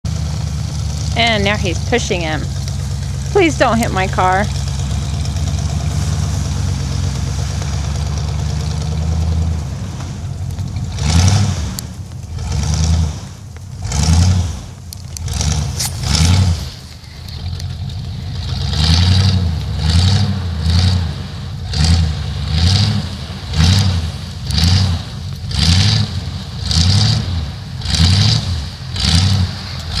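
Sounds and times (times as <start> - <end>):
tires spinning in snow: 0.0 - 30.0
truck engine revving: 0.0 - 30.0.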